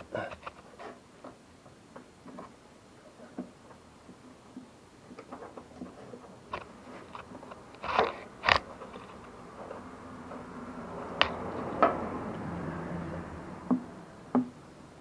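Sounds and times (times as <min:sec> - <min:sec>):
sharp metal knocks: 0:13.7 - 0:14.6.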